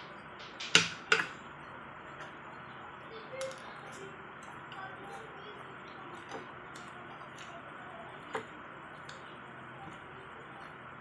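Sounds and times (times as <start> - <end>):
utensils clicking against a dish: 0.4 - 1.4.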